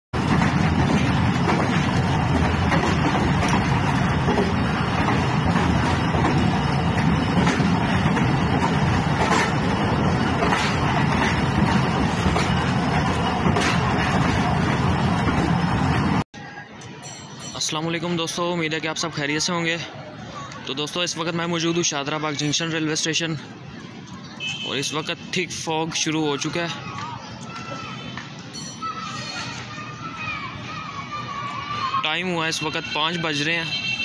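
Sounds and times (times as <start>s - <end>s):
rail joint clicks: 0.2s - 16.2s
train wheels rumbling on rails: 0.2s - 16.2s.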